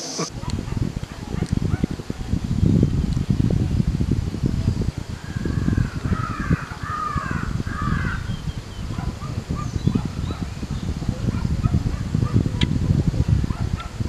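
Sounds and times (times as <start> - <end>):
birds cawing: 5.2 - 8.7.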